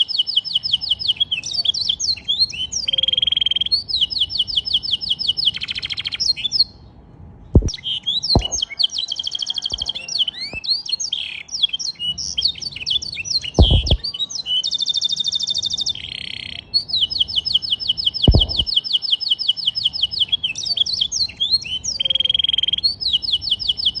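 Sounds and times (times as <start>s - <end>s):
canary singing trills: 0.0s - 7.0s, 7.6s - 24.0s
dull knocks: 8.4s - 8.6s, 13.6s - 14.0s, 18.3s - 18.7s.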